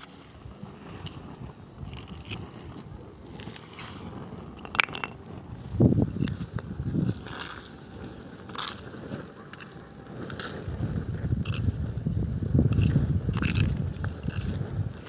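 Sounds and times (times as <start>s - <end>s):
bonfire crackling and popping: 0.0s - 15.0s
wind rumble on microphone: 0.0s - 15.0s.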